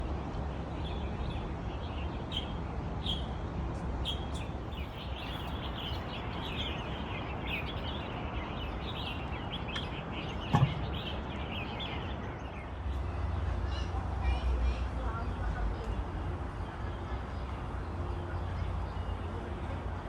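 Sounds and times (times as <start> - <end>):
small birds chirping: 4.0 - 13.9
short thump: 10.5 - 10.9.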